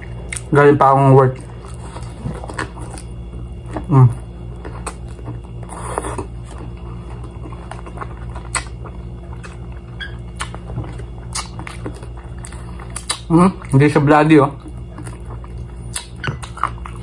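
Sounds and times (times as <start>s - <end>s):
steady low hum: 0.0s - 17.0s
person chewing crispy chicken: 1.3s - 14.0s, 14.6s - 17.0s
mouth smacking: 11.2s - 11.8s, 12.4s - 13.7s, 15.8s - 16.8s.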